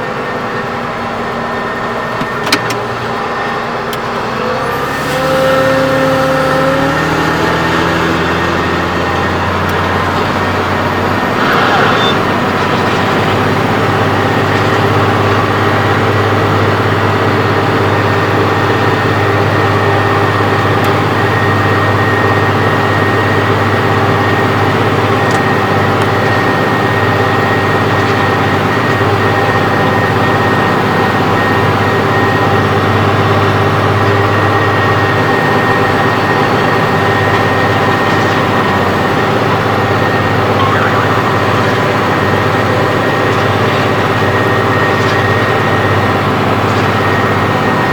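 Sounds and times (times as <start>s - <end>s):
tractor diesel engine running: 0.0s - 47.9s
high whine: 7.5s - 15.7s, 35.6s - 47.9s.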